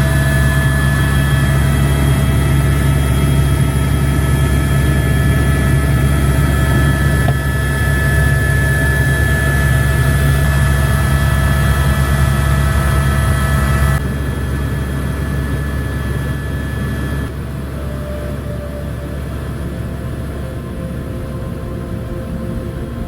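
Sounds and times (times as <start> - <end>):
helicopter engine and rotor drone: 0.0 - 23.0.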